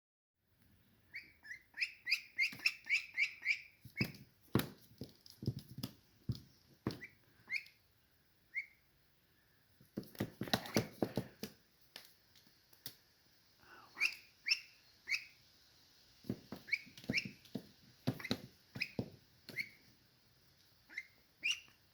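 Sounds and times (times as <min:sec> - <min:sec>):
duckling peeping: 0:01.0 - 0:04.2, 0:06.9 - 0:08.9, 0:13.9 - 0:15.4, 0:16.6 - 0:19.8, 0:20.8 - 0:21.9
sharp knocks and taps: 0:10.0 - 0:11.6, 0:16.3 - 0:19.6.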